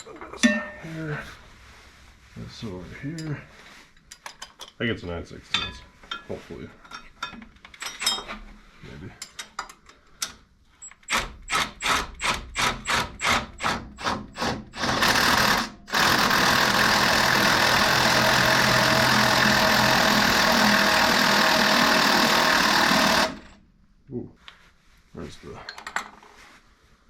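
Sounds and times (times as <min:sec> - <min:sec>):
power wrench spinning a nut: 0:10.9 - 0:23.6.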